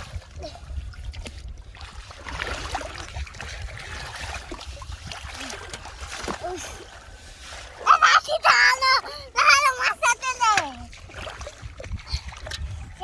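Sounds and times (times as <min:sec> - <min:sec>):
muddy water splashing: 0:00.0 - 0:13.0.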